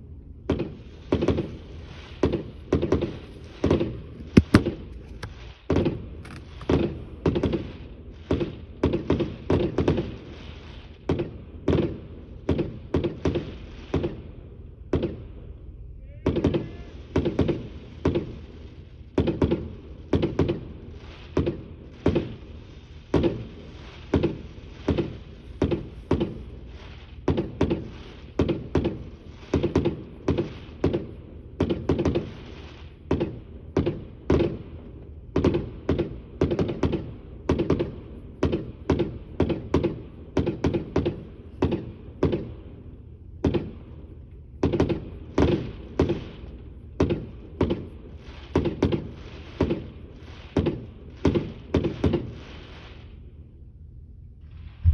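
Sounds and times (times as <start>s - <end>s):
fireworks booming: 0.5s - 7.8s, 23.2s - 34.8s, 54.6s - 54.9s.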